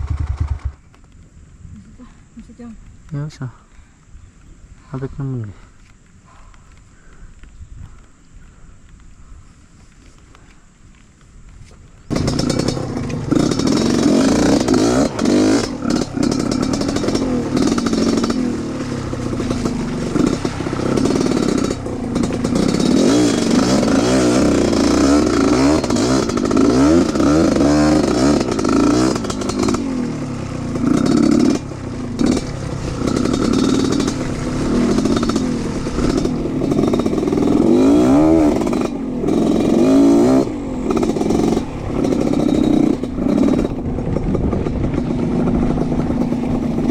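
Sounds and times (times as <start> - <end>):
motorcycle engine revving: 0.0 - 0.9, 12.1 - 46.9.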